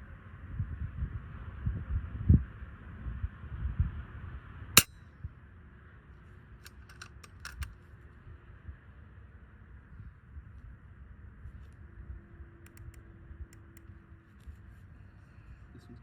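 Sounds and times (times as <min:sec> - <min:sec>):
faint clicks: 0:12.6 - 0:14.0.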